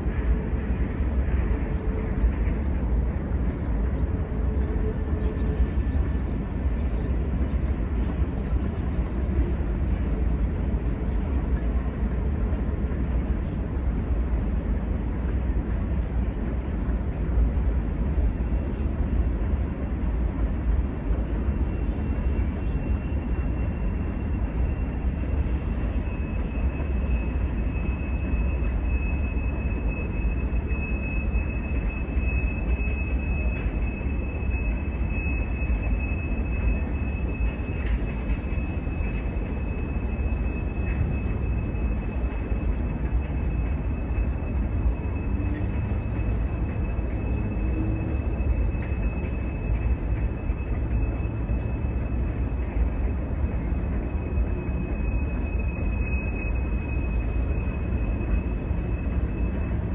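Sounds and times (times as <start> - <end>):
train wheels rumbling on rail: 0.0 - 59.9
lower wheel squeal: 10.2 - 16.0, 20.4 - 59.9
high wheel squeal: 20.7 - 59.9.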